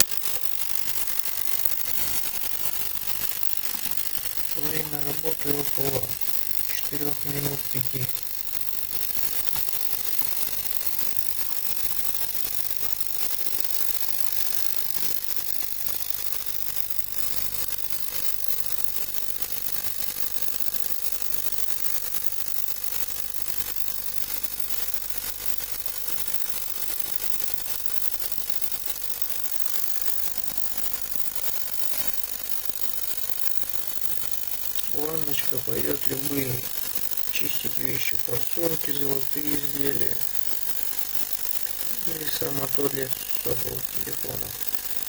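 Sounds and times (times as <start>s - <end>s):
ultrasonic cleaner hissing: 3.9s - 12.4s, 34.7s - 45.0s
thin steady tone: 4.2s - 12.8s, 33.4s - 45.0s.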